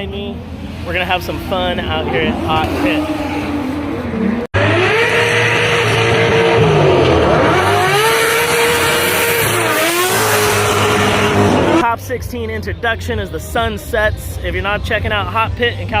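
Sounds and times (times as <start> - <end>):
car engine revving: 0.0 - 11.9.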